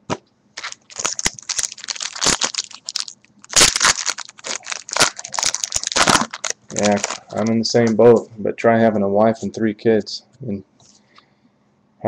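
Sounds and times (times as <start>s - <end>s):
foil wrapper crinkling: 0.6s - 8.2s.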